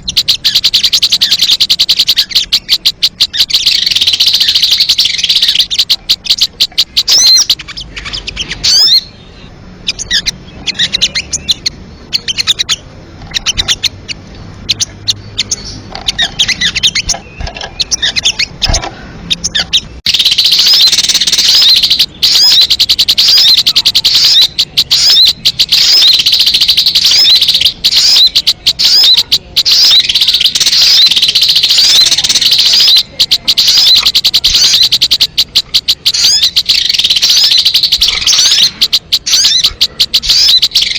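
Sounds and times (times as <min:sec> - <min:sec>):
high-pitched bird chirps and trills: 0:00.0 - 0:40.9.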